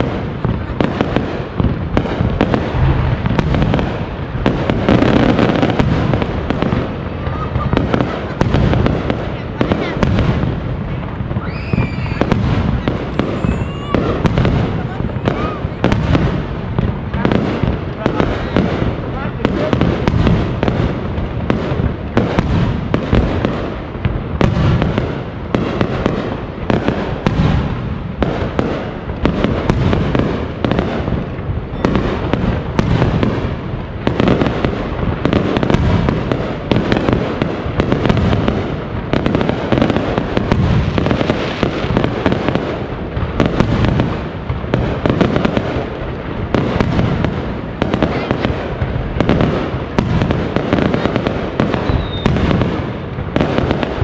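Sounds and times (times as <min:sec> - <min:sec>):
firework shells bursting: 0:48.0 - 0:52.7.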